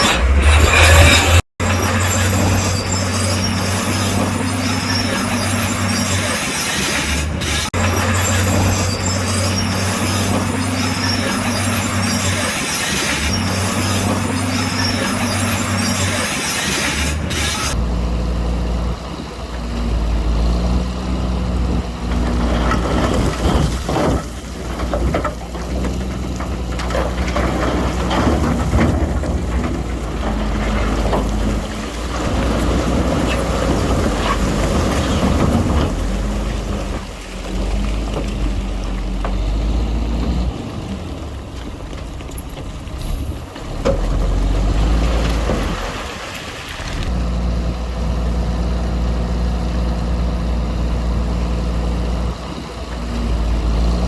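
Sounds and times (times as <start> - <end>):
diesel machinery engine drone: 0.0 - 54.0
metal clanks and knocks: 22.1 - 37.2.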